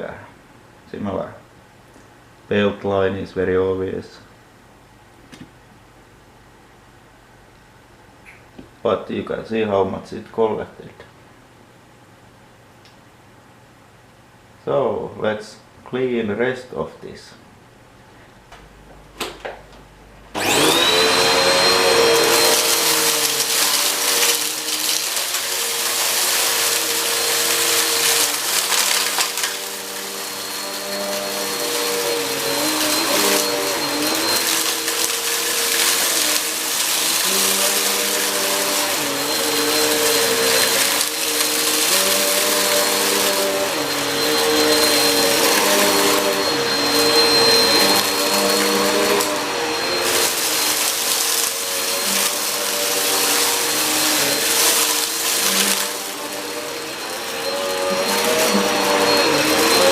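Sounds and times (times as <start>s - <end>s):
vacuum cleaner motor whining: 20.3s - 59.9s.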